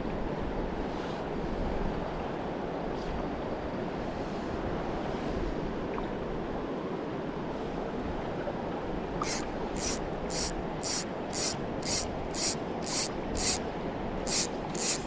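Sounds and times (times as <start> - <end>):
fly line pulled by hand: 9.2 - 13.6, 14.2 - 15.0
river current rushing: 9.2 - 15.0.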